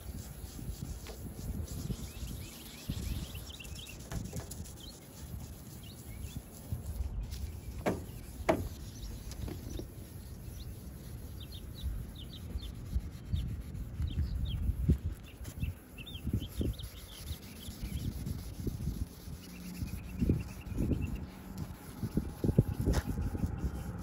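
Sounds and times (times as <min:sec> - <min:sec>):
small birds chirping: 0:00.0 - 0:24.0
handling noise: 0:07.4 - 0:10.0.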